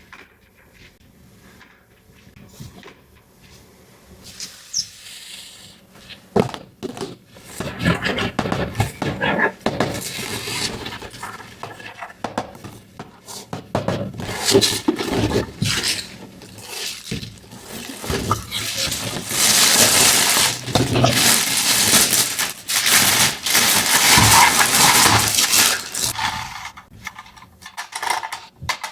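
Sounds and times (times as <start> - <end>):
packaging rustling: 9.9 - 11.6, 14.2 - 26.7.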